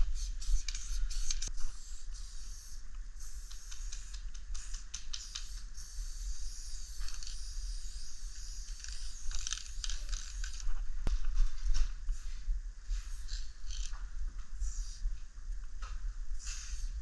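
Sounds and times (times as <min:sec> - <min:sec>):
spray can hissing: 0:00.0 - 0:10.6, 0:14.6 - 0:15.0, 0:16.4 - 0:17.0
spray can rattling and clicking: 0:00.2 - 0:10.7, 0:16.4 - 0:16.9.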